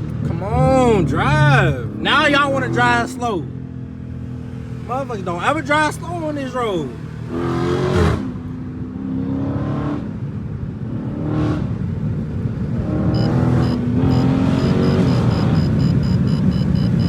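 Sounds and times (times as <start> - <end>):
car engine accelerating: 0.0 - 17.0
high-pitched ticking or beeping: 13.2 - 17.0.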